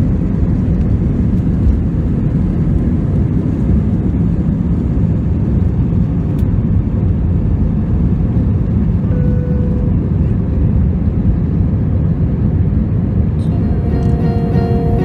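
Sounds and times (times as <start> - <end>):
airliner cabin engine roar: 0.0 - 15.0
single tone: 9.1 - 10.0, 13.4 - 15.0.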